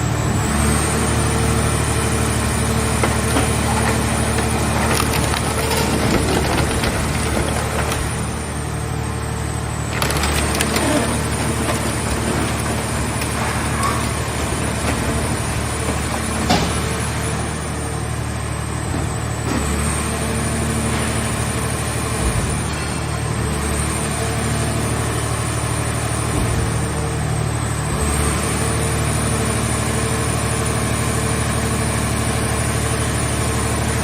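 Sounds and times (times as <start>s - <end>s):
sheet metal creaking and cracking: 3.0s - 8.6s, 9.9s - 17.1s.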